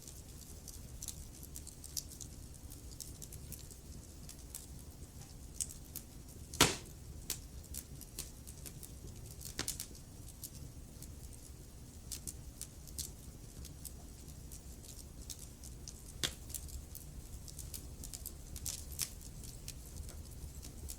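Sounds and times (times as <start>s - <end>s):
fire crackling: 0.0s - 20.9s
loud pop: 6.6s - 7.0s.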